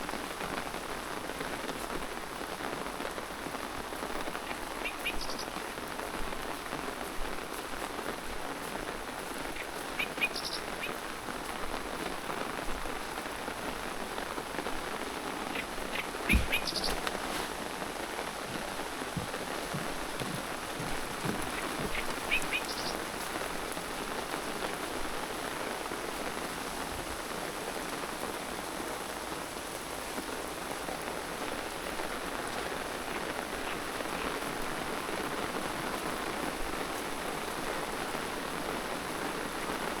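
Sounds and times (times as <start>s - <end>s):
rain pattering: 0.0s - 40.0s
bird chirping: 4.5s - 5.5s, 9.6s - 11.0s, 15.4s - 17.5s, 18.5s - 23.2s
soft thump: 16.3s - 17.5s, 18.5s - 22.2s.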